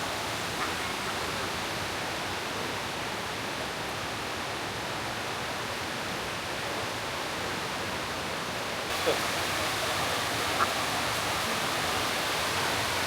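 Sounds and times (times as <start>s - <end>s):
waterfall rushing: 8.9s - 13.0s.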